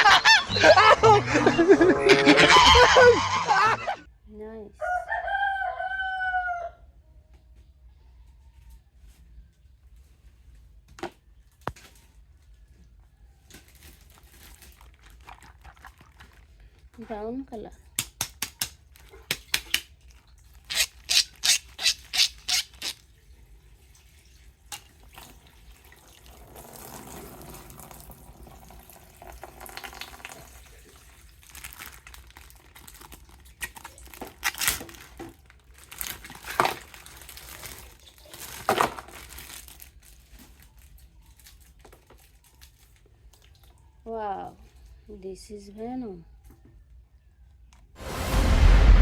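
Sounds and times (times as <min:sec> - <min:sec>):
packaging crinkling: 0:13.6 - 0:16.8, 0:31.2 - 0:42.4
packaging snapping: 0:31.7 - 0:35.2.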